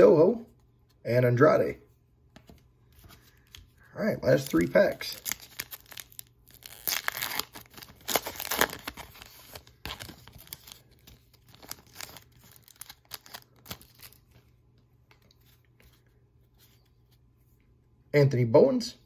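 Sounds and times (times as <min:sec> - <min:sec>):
wrapper tearing and crinkling: 0:04.4 - 0:14.3.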